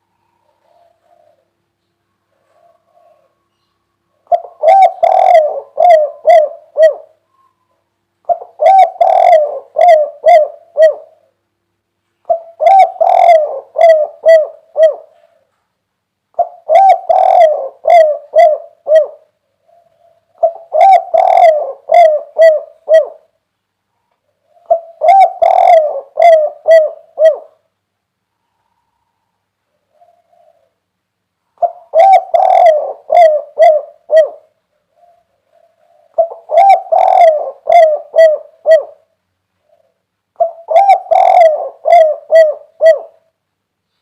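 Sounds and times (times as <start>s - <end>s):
dove cooing: 0.0s - 11.4s, 12.2s - 15.6s, 16.3s - 23.4s, 24.2s - 27.7s, 28.4s - 43.4s.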